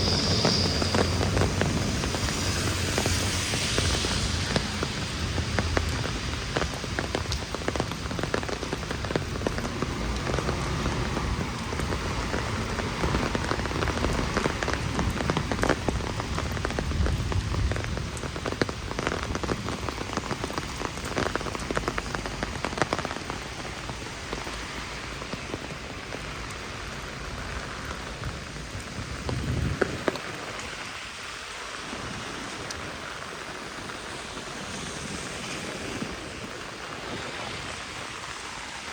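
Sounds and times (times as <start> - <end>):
heavy rain hissing: 0.0 - 38.9.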